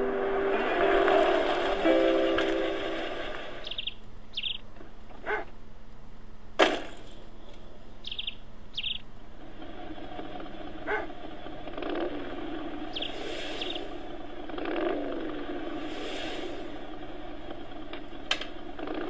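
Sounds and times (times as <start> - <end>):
bird chirping: 3.6 - 4.7, 7.4 - 9.1, 12.7 - 14.1.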